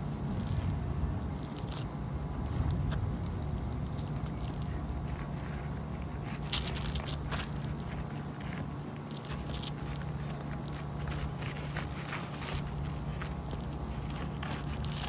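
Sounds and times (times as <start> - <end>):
steady low rumble: 0.0 - 8.4
tool scraping roof shingles: 2.3 - 15.0.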